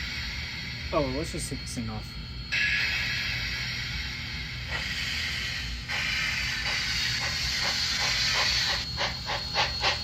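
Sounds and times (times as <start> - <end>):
steam locomotive exhaust chuffs: 0.0 - 1.5, 2.5 - 10.0
steam hiss from small speaker: 2.6 - 10.0.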